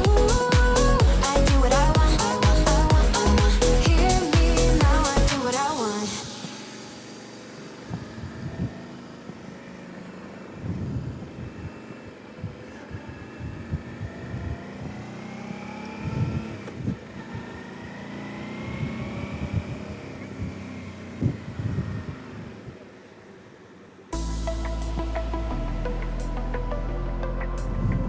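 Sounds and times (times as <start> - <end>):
motorcycle engine running: 0.0 - 5.3
low thumps: 0.0 - 5.4.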